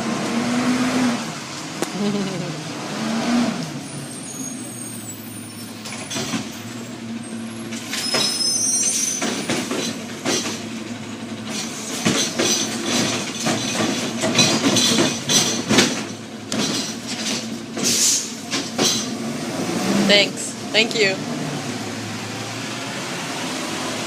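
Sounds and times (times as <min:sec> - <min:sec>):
garbage truck running: 0:00.0 - 0:24.0
high squeals: 0:03.8 - 0:06.2, 0:06.8 - 0:09.5
clanks and knocks: 0:05.8 - 0:06.7, 0:09.1 - 0:19.2.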